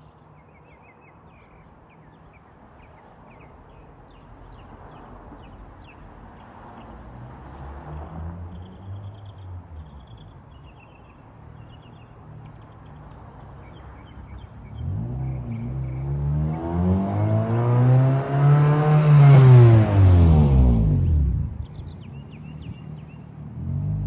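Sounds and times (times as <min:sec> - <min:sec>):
car engine revving through exhaust: 0:14.7 - 0:21.8, 0:23.5 - 0:24.0.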